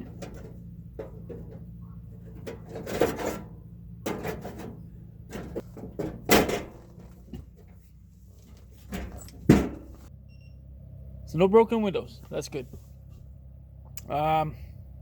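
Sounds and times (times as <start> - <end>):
knocks and clatters: 0.0 - 10.1.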